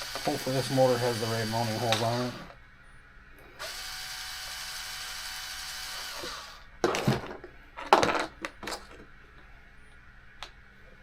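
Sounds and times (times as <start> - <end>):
handheld power tool whirring: 0.0 - 2.6, 3.6 - 6.7.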